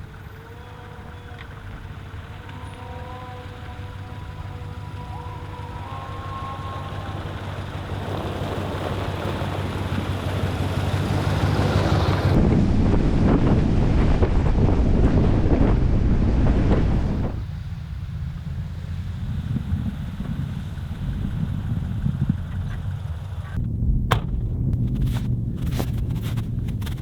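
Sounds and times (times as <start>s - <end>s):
truck engine running: 0.0s - 27.0s
wind noise on microphone: 0.0s - 27.0s.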